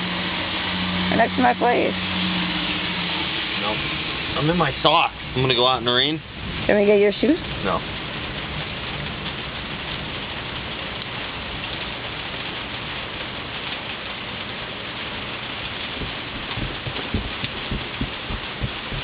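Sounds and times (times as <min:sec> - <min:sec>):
steady rain falling: 0:00.0 - 0:19.0
low knocks: 0:15.8 - 0:19.0.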